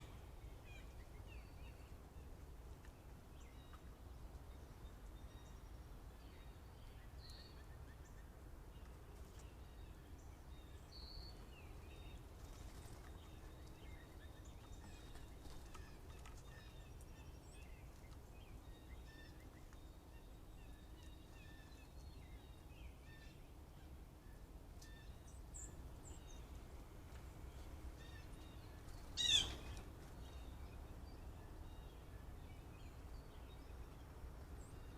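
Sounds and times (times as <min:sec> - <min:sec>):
bird chirps and calls: 0:28.0 - 0:29.8.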